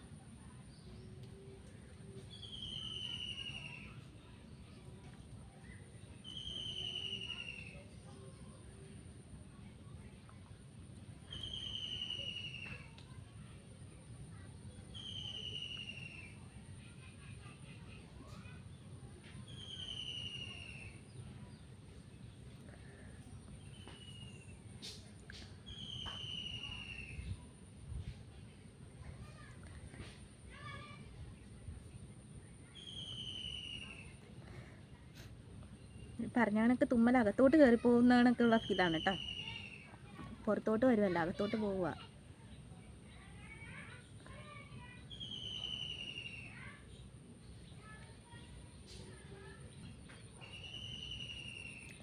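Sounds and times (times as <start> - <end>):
low background noise: 0.0 - 52.0
bird whistling call: 2.3 - 4.0, 6.2 - 7.8, 11.3 - 12.9, 14.9 - 16.4, 19.5 - 21.0, 25.6 - 27.4, 32.8 - 34.2, 38.5 - 39.9, 45.1 - 46.7, 50.4 - 52.0.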